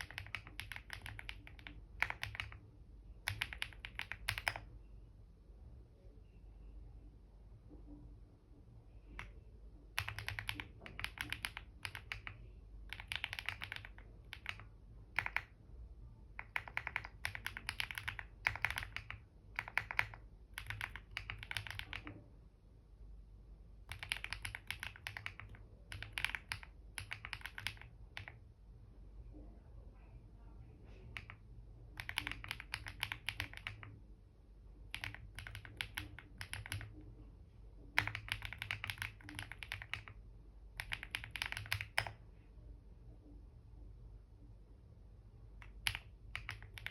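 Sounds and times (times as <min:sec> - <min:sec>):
computer keyboard typing: 0:00.0 - 0:04.7, 0:09.1 - 0:15.6, 0:16.3 - 0:22.2, 0:23.8 - 0:28.5, 0:31.0 - 0:34.0, 0:34.8 - 0:37.1, 0:37.8 - 0:42.2, 0:45.6 - 0:46.9.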